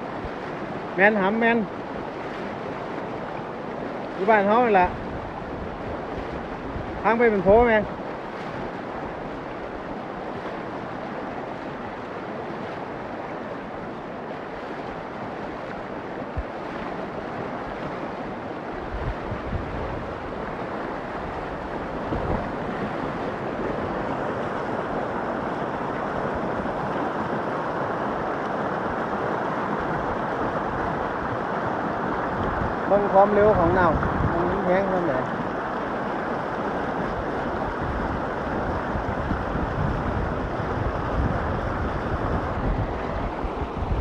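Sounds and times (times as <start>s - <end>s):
floodwater rushing: 0.0s - 44.0s
wind knocks on microphone: 21.3s - 23.1s, 32.3s - 34.8s, 37.0s - 44.0s.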